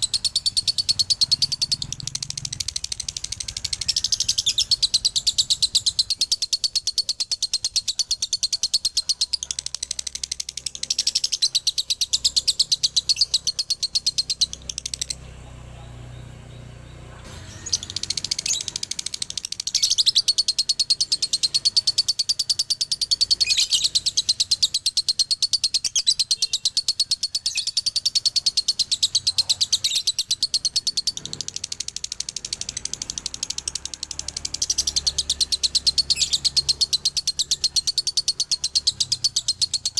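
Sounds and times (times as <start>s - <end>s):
lovebird chattering trill: 0.0s - 15.4s, 17.3s - 39.9s.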